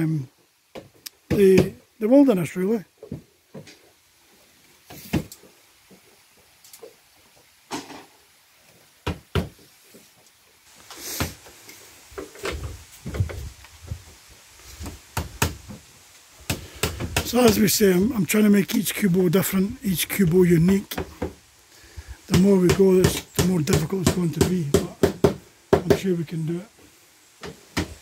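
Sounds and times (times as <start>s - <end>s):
building work knocks and taps: 0.3s - 1.8s, 3.0s - 3.9s, 4.8s - 8.1s, 9.0s - 10.4s, 11.2s - 14.2s, 14.8s - 15.9s, 16.5s - 17.8s, 20.2s - 21.4s, 22.3s - 26.1s, 27.4s - 28.0s.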